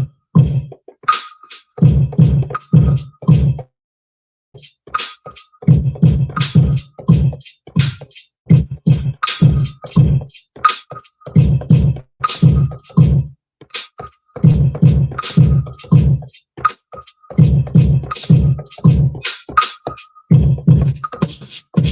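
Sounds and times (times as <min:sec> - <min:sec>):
hi-hat ticks: 0:02.5 - 0:03.2, 0:04.6 - 0:13.0, 0:13.8 - 0:20.2.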